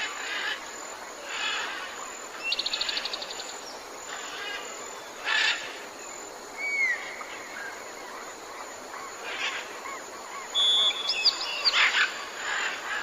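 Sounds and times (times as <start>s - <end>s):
steady background hiss: 0.0s - 13.0s
birds whistling: 10.5s - 12.1s.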